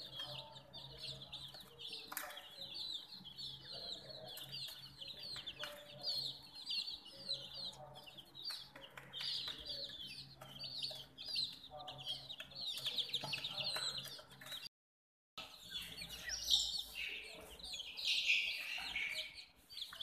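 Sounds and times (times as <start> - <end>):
baby chicks peeping: 0.0 - 14.7, 15.4 - 20.0.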